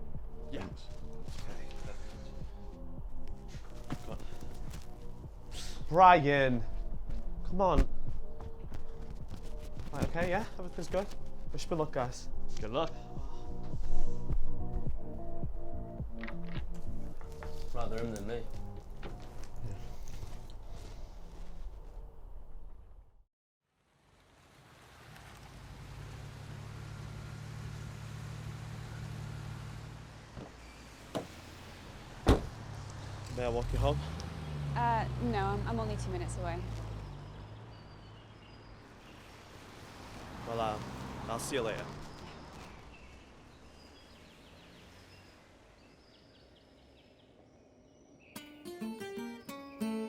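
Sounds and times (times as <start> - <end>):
car engine humming: 0.0 - 22.6, 24.1 - 46.7
faint outdoor background noise: 23.8 - 48.4
strummed acoustic guitar music: 48.4 - 50.0.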